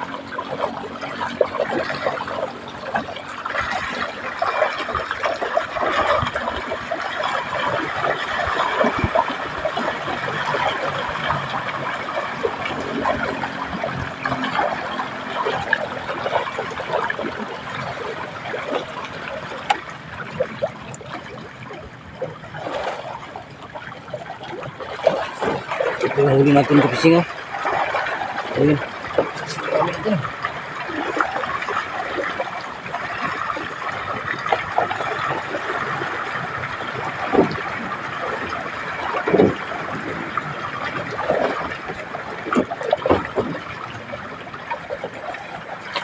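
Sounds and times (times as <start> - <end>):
water splashing and trickling: 0.0 - 46.0.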